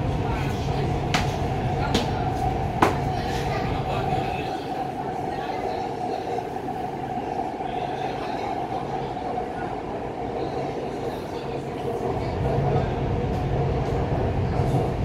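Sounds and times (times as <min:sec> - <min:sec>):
metro train rumble and whine: 0:00.0 - 0:15.0.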